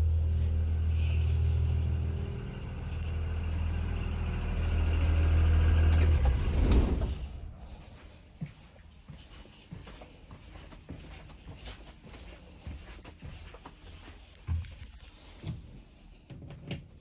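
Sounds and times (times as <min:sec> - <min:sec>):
bus engine idling: 0:00.0 - 0:08.2.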